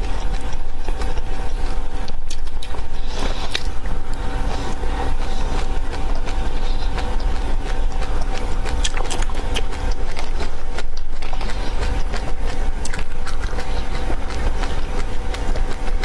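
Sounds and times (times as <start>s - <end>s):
low rumble and hum: 0.0s - 16.0s
seeds crunching while chewed: 0.0s - 16.0s.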